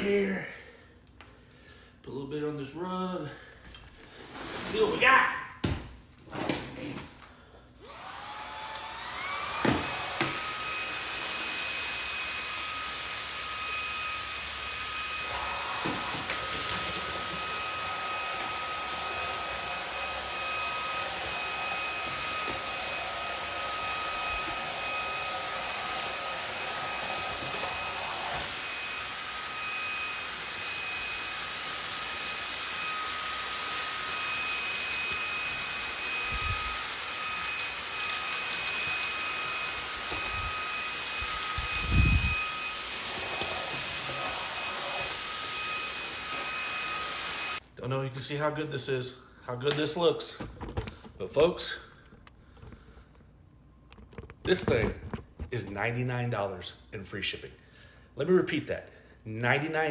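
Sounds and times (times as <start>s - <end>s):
vacuum cleaner motor whining: 7.8s - 47.6s
vacuum sucking up soil: 7.9s - 47.6s.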